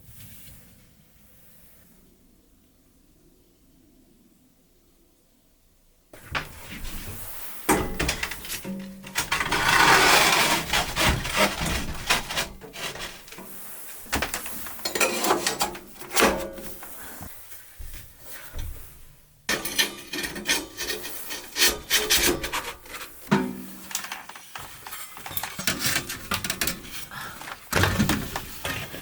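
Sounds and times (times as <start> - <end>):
logs knocking and scraping: 6.2 - 29.0.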